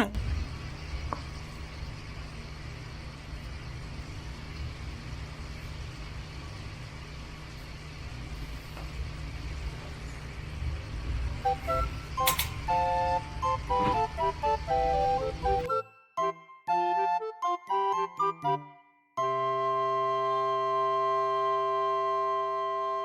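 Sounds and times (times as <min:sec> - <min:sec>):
steady low hum: 0:00.0 - 0:15.7.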